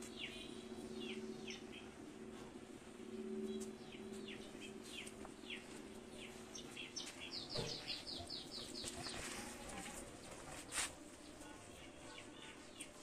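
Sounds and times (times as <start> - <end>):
bird chirping: 0.0 - 2.0, 3.1 - 9.4
steady low hum: 0.0 - 13.0.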